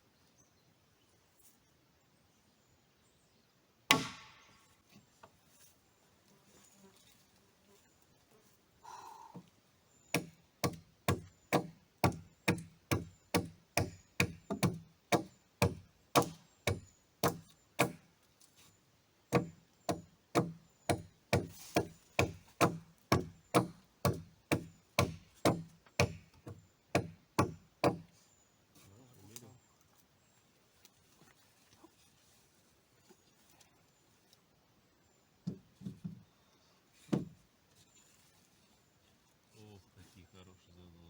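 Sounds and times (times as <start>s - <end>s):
axe chopping wood: 3.9s - 4.6s, 10.1s - 18.1s, 19.3s - 28.1s, 37.1s - 37.4s.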